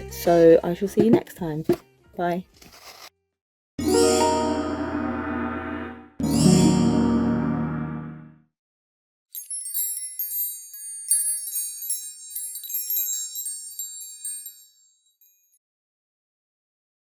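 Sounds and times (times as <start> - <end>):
high tinkling chimes: 6.2 - 7.3, 9.3 - 15.6.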